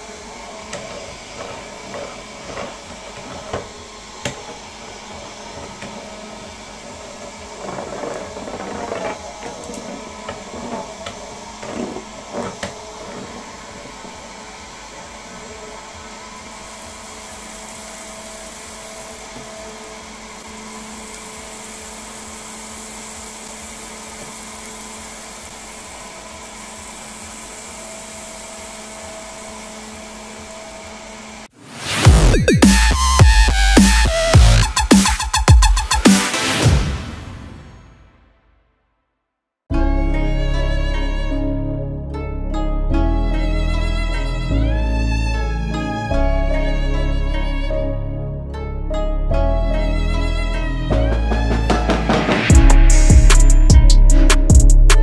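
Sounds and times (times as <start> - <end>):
small electric motor whining: 0.0 - 31.5.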